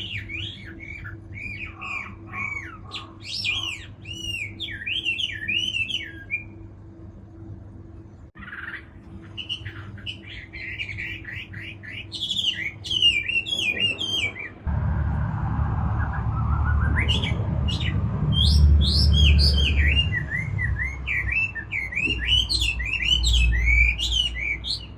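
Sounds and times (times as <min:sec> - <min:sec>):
bird singing whistled phrases: 0:00.0 - 0:06.6, 0:08.4 - 0:14.6, 0:15.9 - 0:24.9
low rumble: 0:14.6 - 0:21.1.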